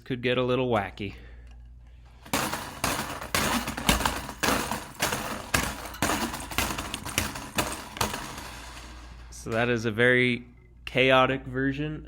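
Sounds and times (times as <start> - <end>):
slinky coils clattering: 1.6 - 9.6.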